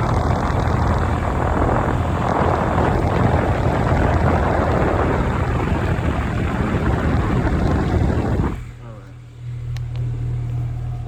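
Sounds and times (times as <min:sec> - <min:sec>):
condenser fan rushing: 0:00.0 - 0:11.0
low compressor hum: 0:00.0 - 0:11.0.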